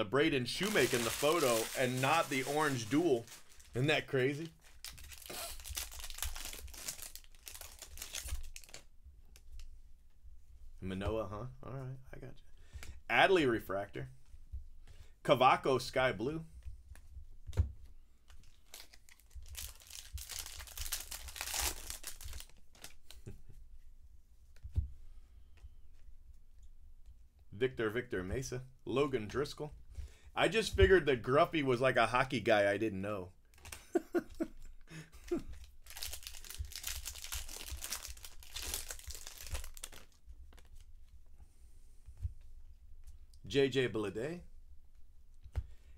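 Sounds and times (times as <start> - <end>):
wrapper handling: 0.4 - 9.6, 18.3 - 23.2, 35.2 - 40.9
foil wrapper crinkling and tearing: 0.5 - 8.9, 18.3 - 23.2, 35.4 - 40.9.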